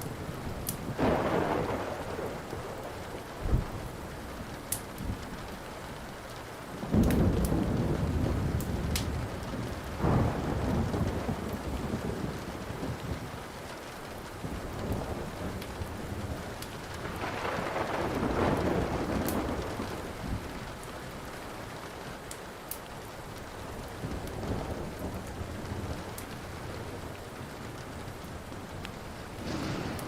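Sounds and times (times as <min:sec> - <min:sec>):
rolling thunder rumble: 0:00.0 - 0:21.9, 0:23.2 - 0:30.0
steady rain falling: 0:00.0 - 0:30.0
wood fire crackling: 0:00.0 - 0:30.0.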